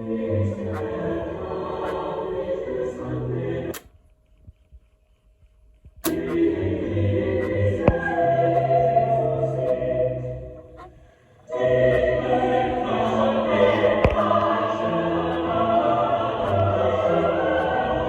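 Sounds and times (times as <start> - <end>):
choral operatic music: 0.0 - 3.9, 6.0 - 18.0
sharp clicks: 3.7 - 6.5.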